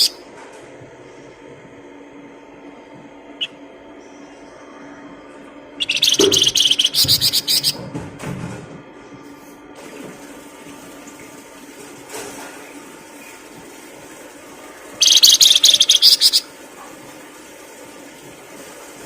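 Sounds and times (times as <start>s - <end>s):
songbird trilling: 5.8s - 7.8s, 15.0s - 16.4s.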